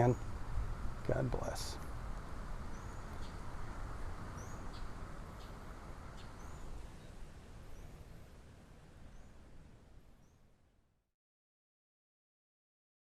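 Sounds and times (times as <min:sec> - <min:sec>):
outdoor background noise: 0:00.0 - 0:11.1
small bird chirping: 0:02.6 - 0:03.7, 0:04.3 - 0:08.1.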